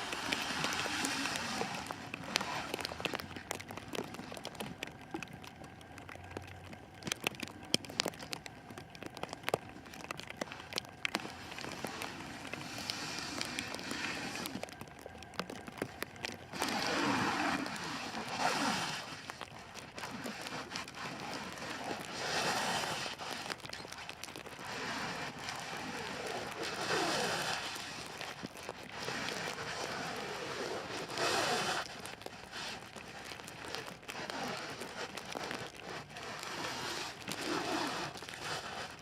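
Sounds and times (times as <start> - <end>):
plastic wrap crackling and rustling: 0.0 - 39.0.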